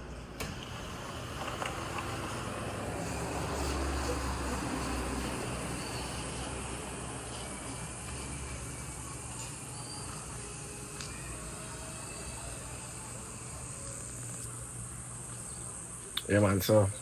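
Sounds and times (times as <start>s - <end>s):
car road and engine rumble: 0.0s - 9.7s.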